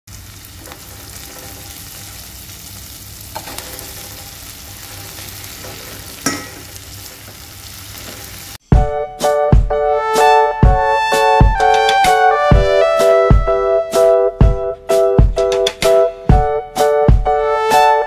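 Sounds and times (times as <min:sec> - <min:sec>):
oil sizzling in a wok: 0:00.1 - 0:08.6.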